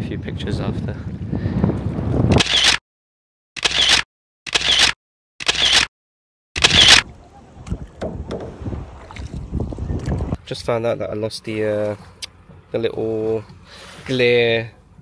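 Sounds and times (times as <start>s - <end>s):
camera shutter click: 2.3s - 2.8s, 3.6s - 5.9s, 6.6s - 7.0s
outdoor background sound: 3.6s - 5.9s, 6.6s - 15.0s.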